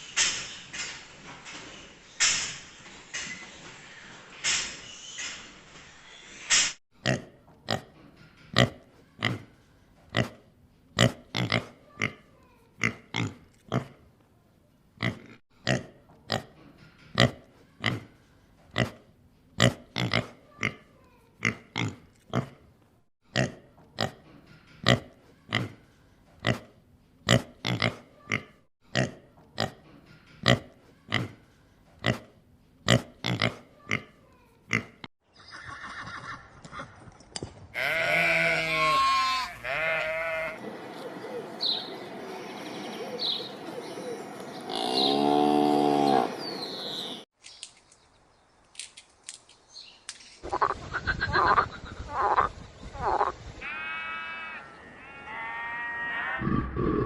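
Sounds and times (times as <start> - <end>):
pig grunting: 56.2 - 57.0.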